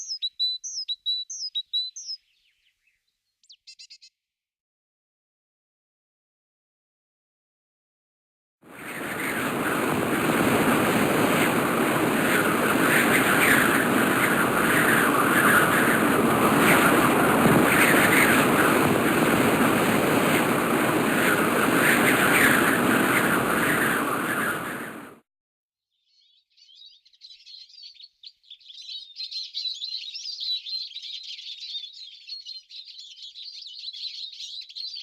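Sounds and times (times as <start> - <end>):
mountain stream rushing: 8.8 - 25.1.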